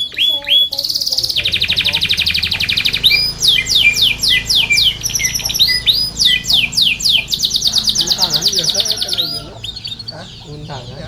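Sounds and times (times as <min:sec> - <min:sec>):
canary singing: 0:00.0 - 0:11.0.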